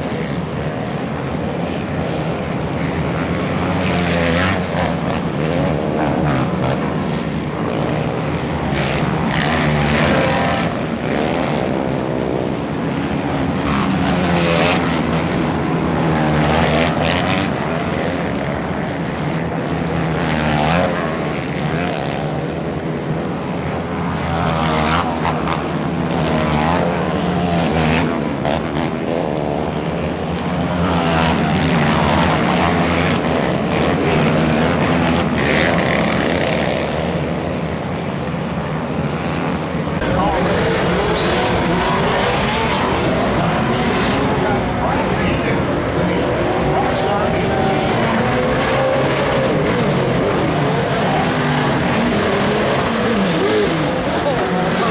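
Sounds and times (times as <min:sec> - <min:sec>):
racing vehicle engines revving: 0:00.0 - 0:54.9.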